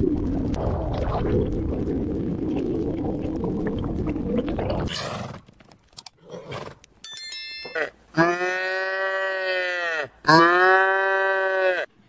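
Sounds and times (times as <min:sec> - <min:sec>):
high ding: 0:07.0 - 0:08.0
cow mooing: 0:07.8 - 0:11.9.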